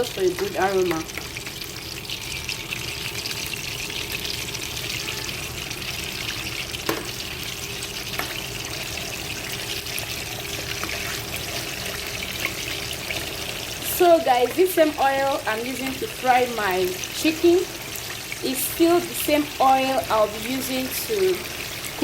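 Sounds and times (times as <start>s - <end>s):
oil crackles and pops: 0.0s - 13.6s
chicken sizzling in hot oil: 0.0s - 22.0s.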